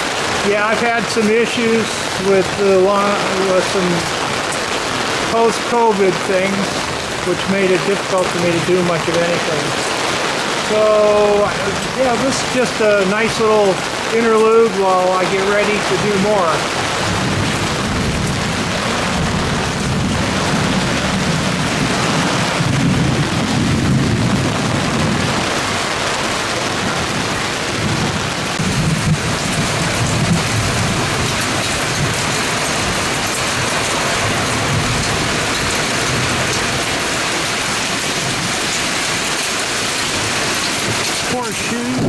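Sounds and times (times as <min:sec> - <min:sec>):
heavy rain pouring: 0:00.0 - 0:42.0
low rumbling: 0:02.0 - 0:25.7.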